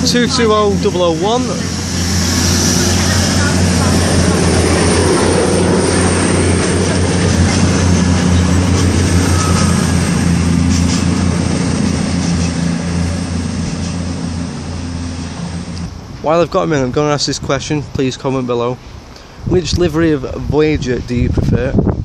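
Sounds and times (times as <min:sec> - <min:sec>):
train diesel engines humming: 0:00.0 - 0:16.5
train rolling noise: 0:00.0 - 0:17.2.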